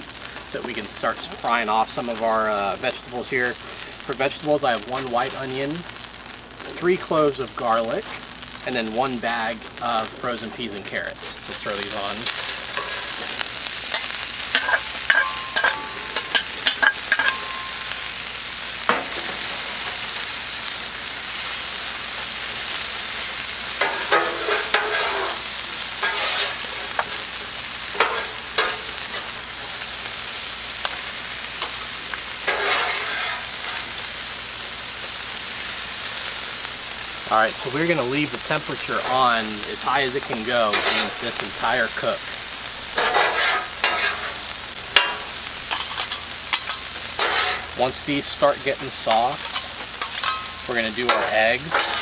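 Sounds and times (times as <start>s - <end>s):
vegetables sizzling on griddle: 0.0s - 52.0s
spatulas scraping griddle: 8.8s - 18.2s, 18.8s - 20.3s, 22.2s - 34.1s, 37.4s - 52.0s
spatulas clinking on metal plate: 14.0s - 17.7s, 49.4s - 50.5s, 51.1s - 52.0s.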